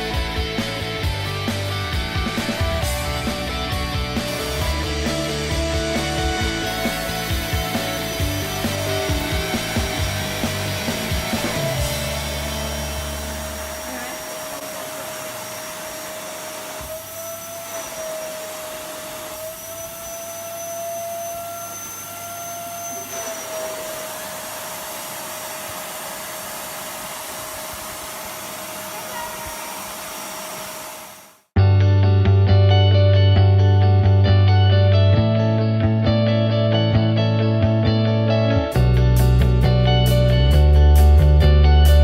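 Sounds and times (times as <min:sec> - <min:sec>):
vacuum cleaner running: 0:00.0 - 0:31.5.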